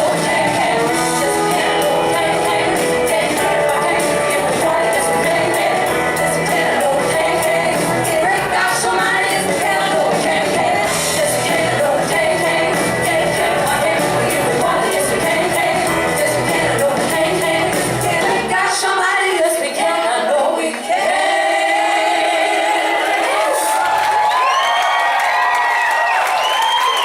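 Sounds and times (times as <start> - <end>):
live band playing: 0.0 - 18.6
women singing: 0.0 - 23.8.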